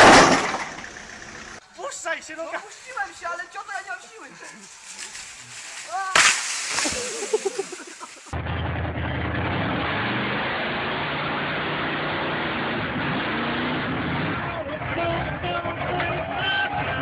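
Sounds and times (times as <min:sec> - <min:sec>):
sudden crash: 0:00.0 - 0:00.9, 0:05.8 - 0:07.8
vehicle engine running: 0:00.0 - 0:01.6.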